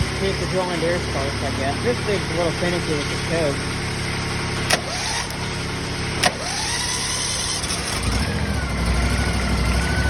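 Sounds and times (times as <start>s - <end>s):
deeper engine starting: 0.0s - 10.0s
small diesel engine idling: 0.0s - 10.0s
sharp clicks: 4.7s - 5.4s, 6.2s - 6.7s.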